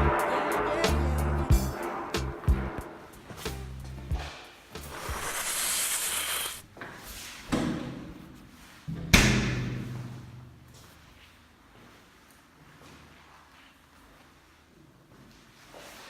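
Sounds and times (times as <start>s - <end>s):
hiss: 4.8s - 6.6s.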